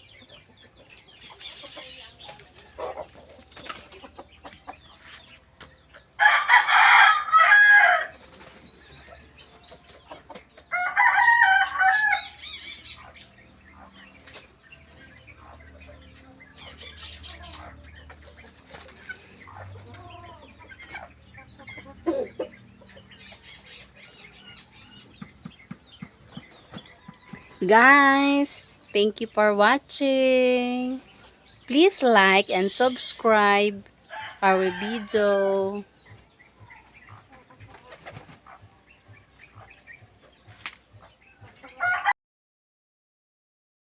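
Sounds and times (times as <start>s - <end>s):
bird calls and chirps: 0.0s - 6.2s, 8.1s - 42.0s
chickens clucking: 0.0s - 42.2s
loud chicken call: 6.2s - 8.1s, 10.7s - 12.6s.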